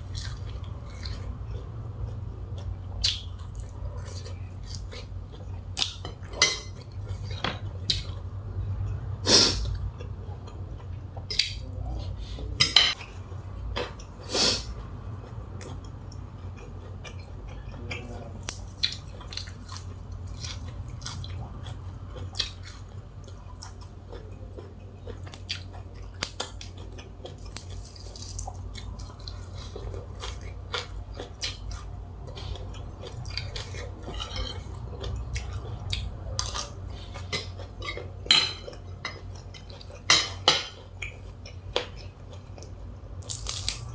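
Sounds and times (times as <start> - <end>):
utensils clinking against dishes: 6.0 - 7.6, 12.6 - 13.0, 37.2 - 40.9.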